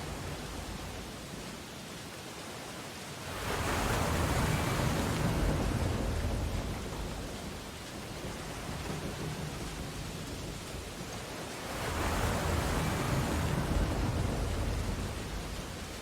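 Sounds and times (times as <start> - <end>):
surf hiss: 0.0 - 16.0
wave breaking: 3.3 - 16.0.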